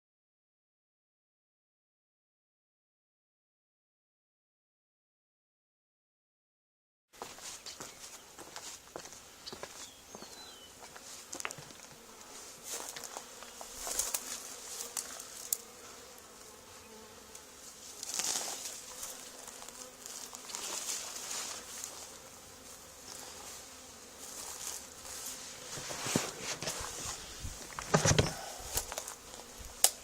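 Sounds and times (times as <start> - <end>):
bees buzzing: 7.2 - 30.0.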